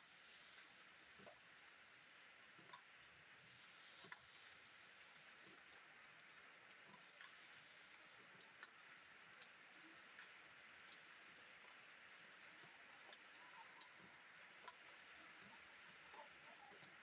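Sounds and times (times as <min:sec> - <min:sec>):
rain hiss: 0:03.4 - 0:09.1.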